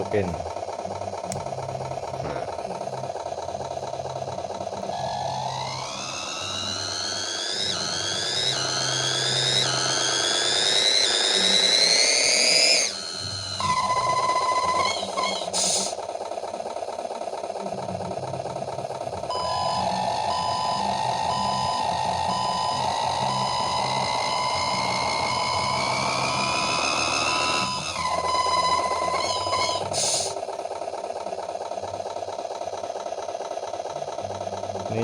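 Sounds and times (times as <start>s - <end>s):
synthesized engine sound revving: 1.4s - 16.0s, 18.2s - 30.4s
repeating electronic beep: 4.8s - 15.8s, 19.3s - 30.2s.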